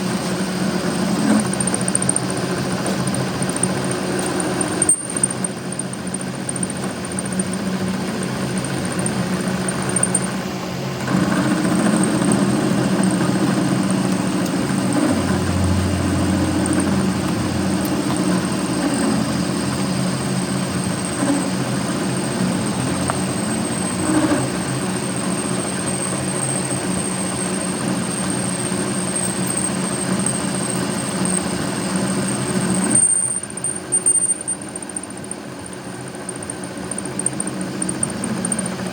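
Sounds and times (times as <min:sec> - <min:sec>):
machine motor humming and whining: 0:00.0 - 0:38.9.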